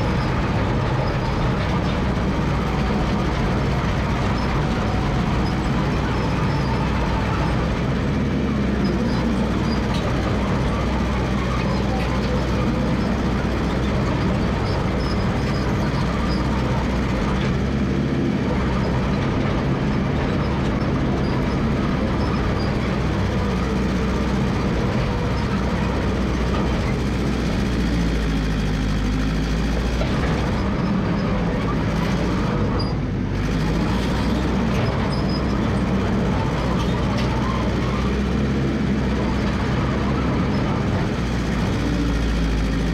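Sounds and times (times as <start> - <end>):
dozer engine running: 0.0 - 42.9.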